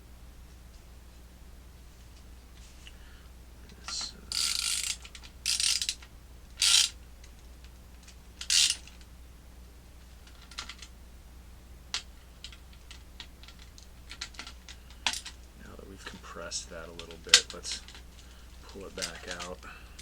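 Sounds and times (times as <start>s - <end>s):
plastic scraping rasps: 3.9s - 7.0s, 8.4s - 9.0s.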